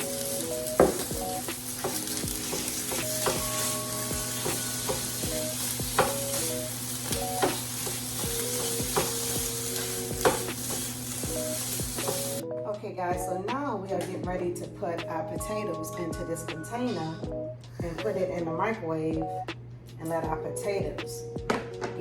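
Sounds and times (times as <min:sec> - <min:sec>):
meat sizzling in a skillet: 0:00.0 - 0:12.4
utensil knocking against pan: 0:01.8 - 0:03.6.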